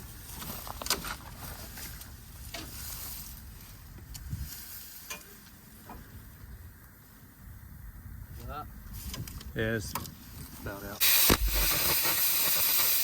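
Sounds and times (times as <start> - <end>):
open fire crackling and popping: 10.6 - 13.0.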